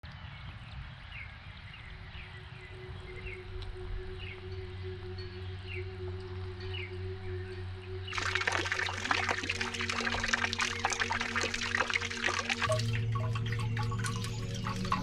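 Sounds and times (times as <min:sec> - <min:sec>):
water dripping and splashing: 0:08.1 - 0:15.0.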